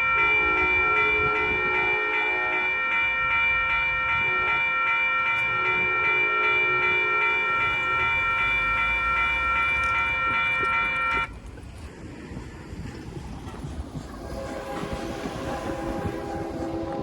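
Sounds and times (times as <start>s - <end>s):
railroad warning signal tone: 0.0s - 11.3s.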